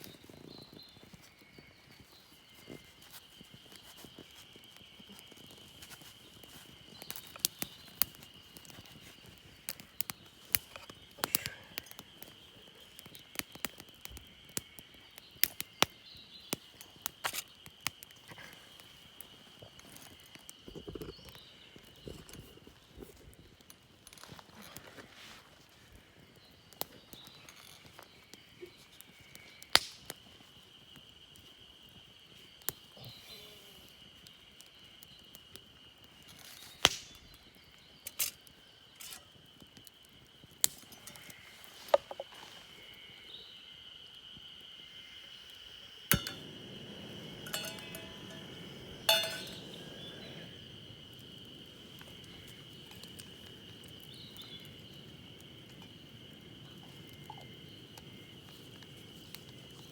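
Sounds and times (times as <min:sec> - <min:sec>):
high insect trill: 0:00.1 - 0:59.9
sharp clicks and clinks: 0:47.4 - 0:50.0.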